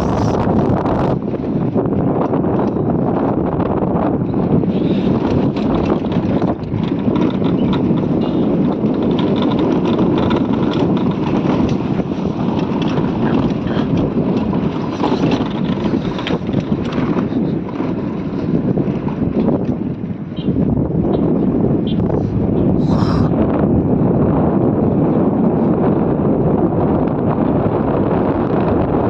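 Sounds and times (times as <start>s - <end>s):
wind buffeting: 0.0s - 29.0s
knocks and rattles from bumps: 5.3s - 18.0s.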